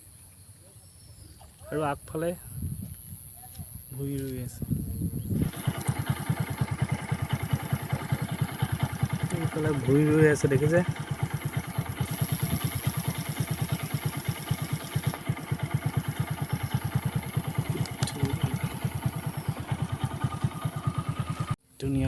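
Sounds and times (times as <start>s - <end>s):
motorcycle engine idling: 5.3s - 21.6s.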